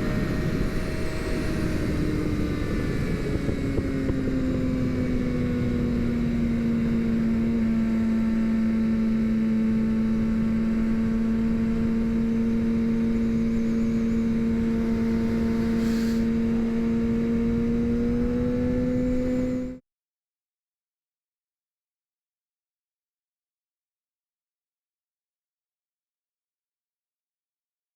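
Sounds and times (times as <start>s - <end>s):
motorcycle engine at high revs: 0.0s - 19.8s.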